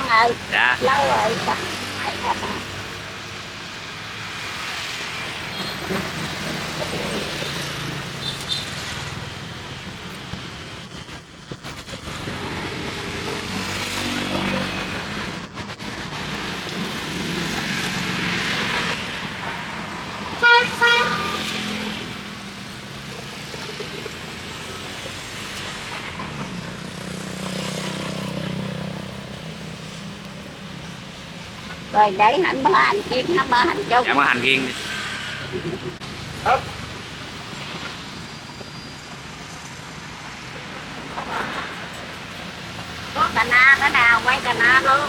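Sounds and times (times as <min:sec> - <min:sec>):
street traffic passing: 0:00.0 - 0:45.0
vehicle horn toots: 0:20.4 - 0:21.7.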